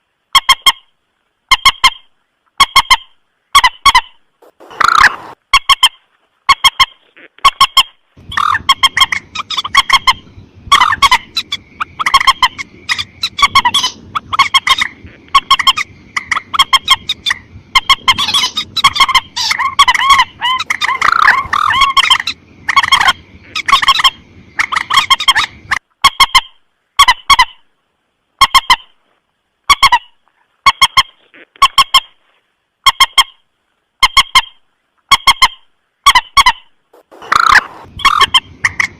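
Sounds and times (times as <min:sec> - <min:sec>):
low hiss: 0:00.0 - 0:07.4, 0:27.6 - 0:30.6, 0:36.7 - 0:38.9
rail bird honking calls: 0:03.6 - 0:25.8, 0:35.4 - 0:38.9.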